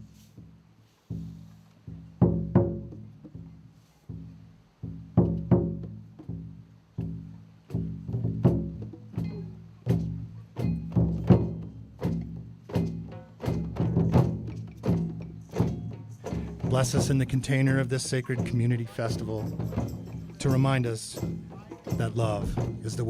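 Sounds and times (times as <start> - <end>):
hand drums: 0.0 - 23.0.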